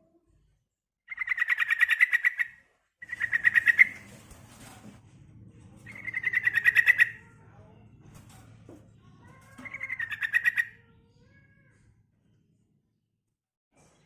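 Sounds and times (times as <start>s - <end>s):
bird chattering trills: 1.1s - 4.1s, 5.9s - 7.2s, 9.6s - 10.7s.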